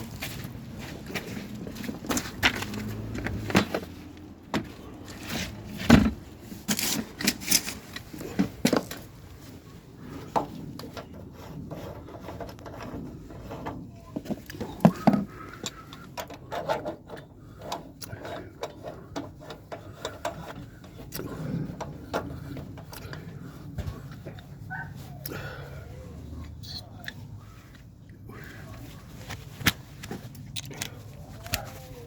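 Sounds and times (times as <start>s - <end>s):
hard objects knocking and clicking: 10.3s - 24.3s.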